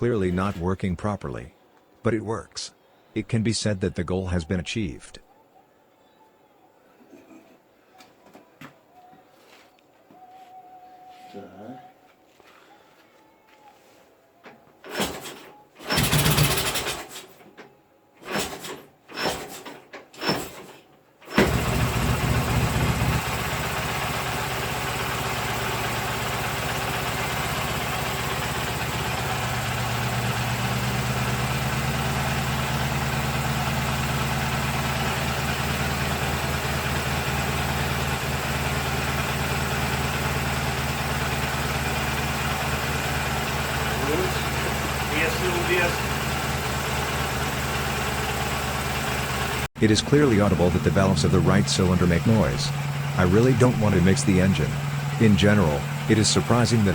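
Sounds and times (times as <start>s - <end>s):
motorcycle engine starting and idling: 14.8s - 17.5s, 18.2s - 56.9s
noisy engine valves: 14.8s - 17.5s, 18.2s - 56.9s.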